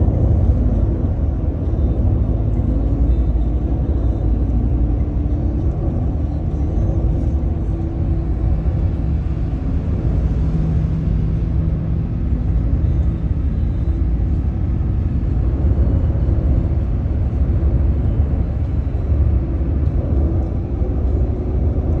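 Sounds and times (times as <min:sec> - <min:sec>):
car driving rumble: 0:00.0 - 0:22.0.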